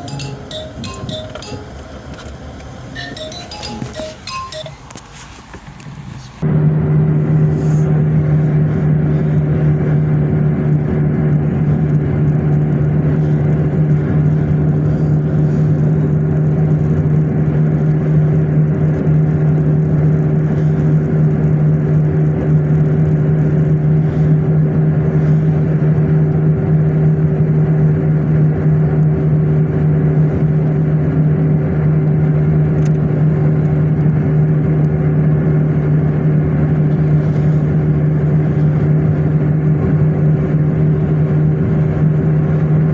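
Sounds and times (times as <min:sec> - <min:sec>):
car engine and road noise: 0:00.0 - 0:42.9.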